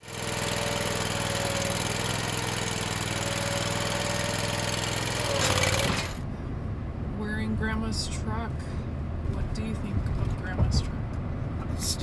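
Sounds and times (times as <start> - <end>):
stump grinder engine running: 0.0 - 6.3.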